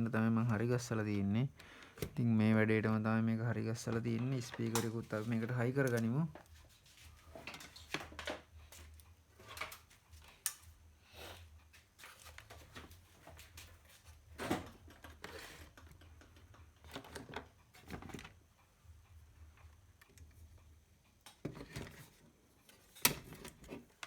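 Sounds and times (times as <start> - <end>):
low steady hum: 0.0 - 7.5
clicks and rustles of wires: 3.7 - 10.8, 11.6 - 18.4.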